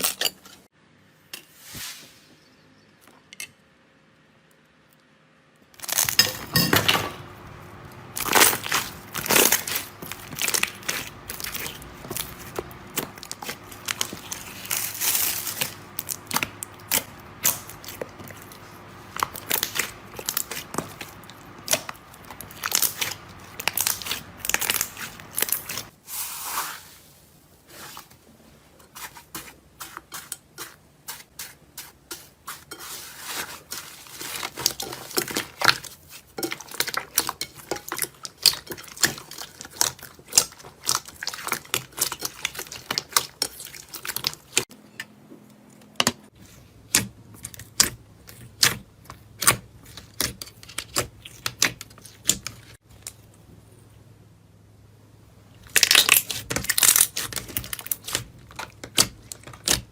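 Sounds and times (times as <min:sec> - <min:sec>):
crunchy material being crushed: 0:05.7 - 0:26.7, 0:55.6 - 0:59.9.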